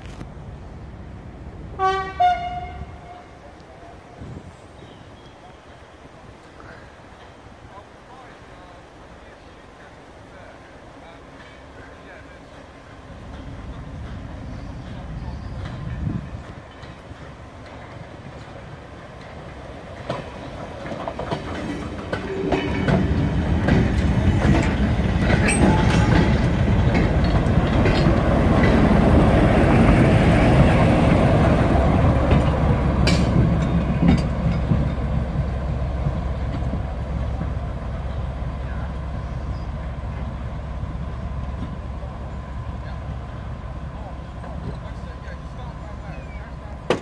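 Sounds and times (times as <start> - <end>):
diesel locomotive engine droning: 0.0 - 47.0
train wheels clicking over rail joints: 11.2 - 37.8.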